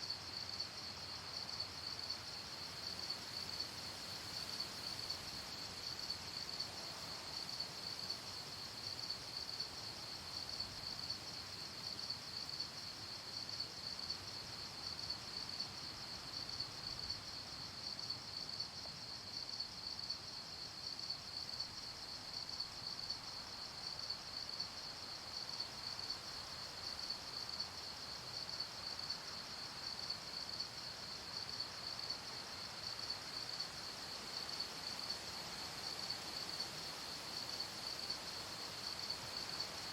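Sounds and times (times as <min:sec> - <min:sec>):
crickets chirping: 0:00.0 - 0:39.9
faint background hiss: 0:00.0 - 0:39.9.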